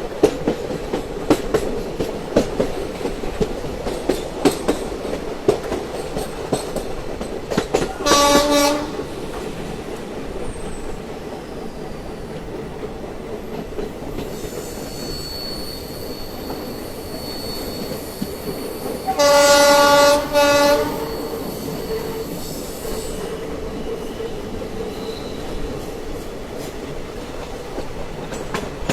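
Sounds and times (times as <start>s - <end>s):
train wheel clacks: 0.0s - 11.1s, 12.2s - 28.9s
train rumble: 0.0s - 28.9s
train horn blast: 8.0s - 9.1s, 19.1s - 22.4s.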